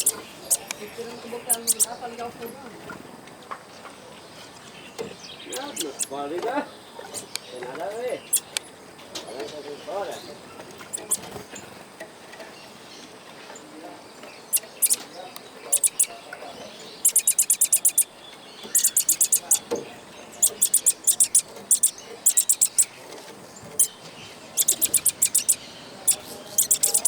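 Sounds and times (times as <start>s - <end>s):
small bird high chirps: 0.0s - 2.1s, 4.6s - 6.2s, 7.0s - 8.7s, 10.9s - 11.3s, 14.4s - 23.0s, 23.6s - 27.0s.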